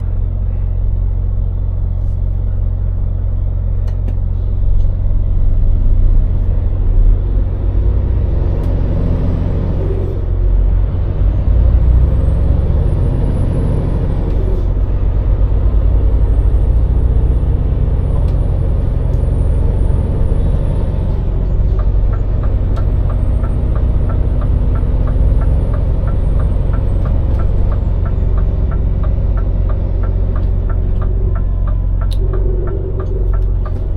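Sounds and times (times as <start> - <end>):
truck diesel engine rumble: 0.0 - 33.9
regular ticking: 21.6 - 33.9.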